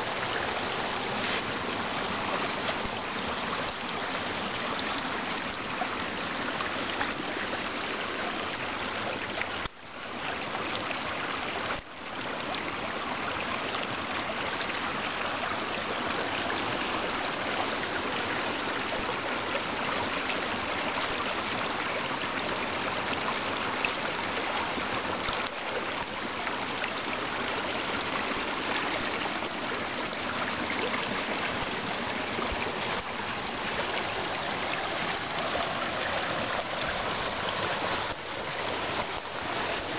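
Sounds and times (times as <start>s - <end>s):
water rushing down a waterfall: 0.0s - 39.9s.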